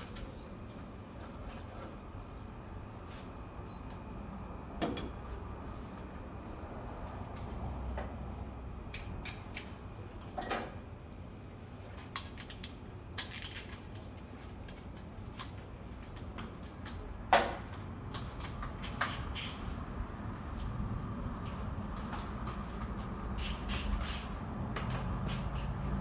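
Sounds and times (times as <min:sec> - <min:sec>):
hand tools clicking and clinking: 0:12.1 - 0:14.2, 0:25.2 - 0:26.0.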